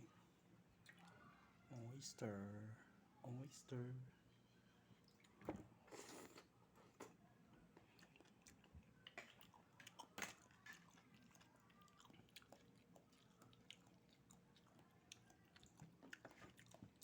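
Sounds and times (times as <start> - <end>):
person chewing and smacking: 7.8 - 17.0.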